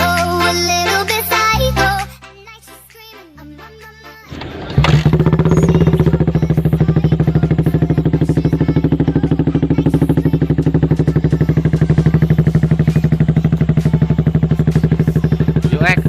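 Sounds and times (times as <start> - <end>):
motorcycle engine idling: 4.3 - 16.0.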